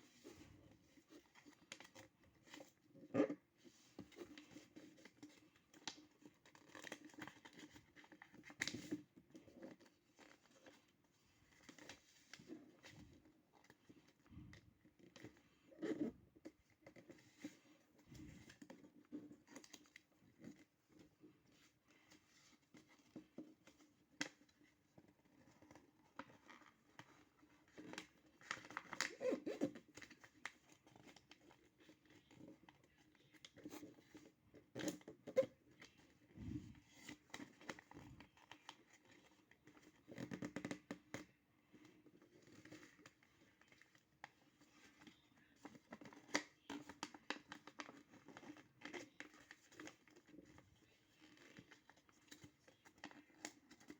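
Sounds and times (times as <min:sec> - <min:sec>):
paper rustling and crinkling: 0:16.5 - 0:53.9.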